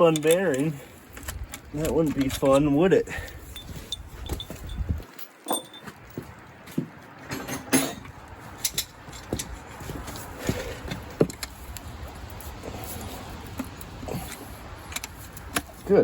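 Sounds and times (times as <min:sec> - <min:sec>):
metal tools clinking on engine parts: 0:00.0 - 0:06.2, 0:07.2 - 0:10.2
metal clatter: 0:07.3 - 0:09.7.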